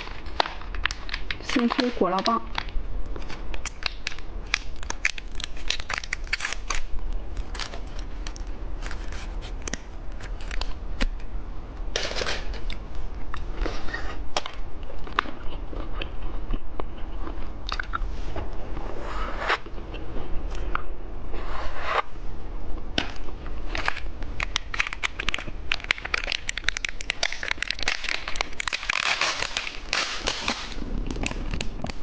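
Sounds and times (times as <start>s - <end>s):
plastic wrapper crinkling: 0.0s - 11.1s, 23.7s - 32.0s
candy crunching: 0.0s - 11.2s, 12.0s - 18.1s, 23.0s - 32.0s.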